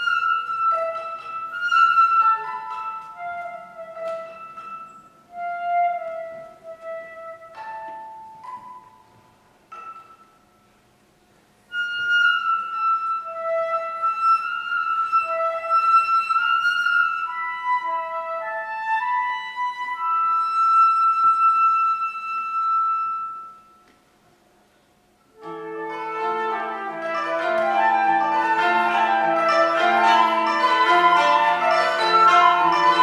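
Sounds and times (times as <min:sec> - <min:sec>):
flute playing long held notes: 0:00.0 - 0:08.5, 0:11.7 - 0:23.8, 0:25.4 - 0:33.0
plucked koto notes: 0:25.4 - 0:33.0.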